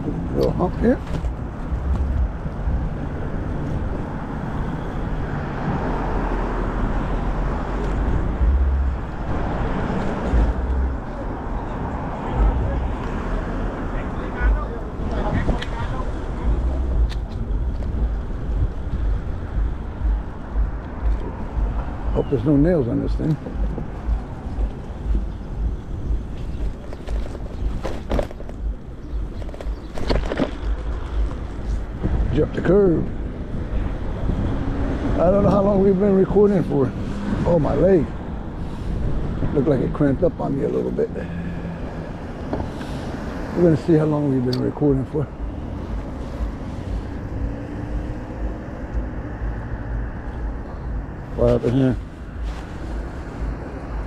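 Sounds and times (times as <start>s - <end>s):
wind buffeting microphone: 0.0s - 40.5s
road noise: 0.0s - 54.0s
tyre and street noise: 0.0s - 54.0s.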